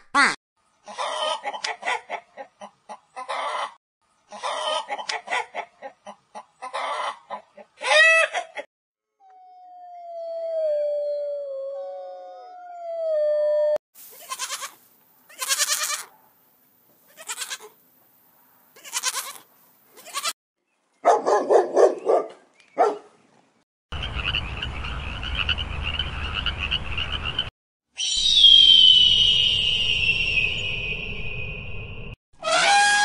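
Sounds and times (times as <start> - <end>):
wolf howling: 9.2 - 13.8
goat kid bleating: 14.1 - 16.1, 17.1 - 17.8, 18.8 - 20.4.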